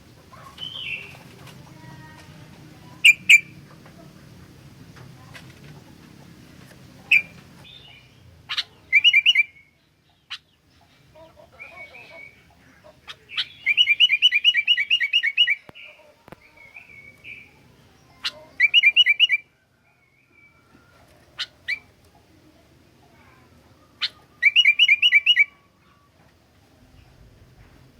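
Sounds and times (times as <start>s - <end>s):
bulbul singing: 0.0s - 1.5s, 2.8s - 4.8s, 7.0s - 20.6s, 23.9s - 26.0s.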